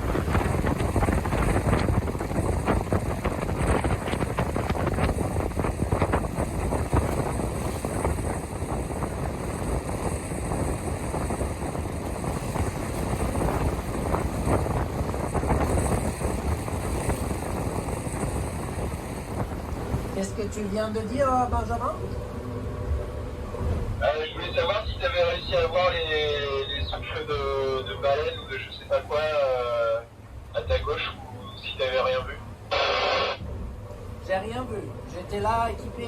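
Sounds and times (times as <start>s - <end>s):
wind buffeting microphone: 0.0s - 27.4s
rushing wind: 0.0s - 36.0s.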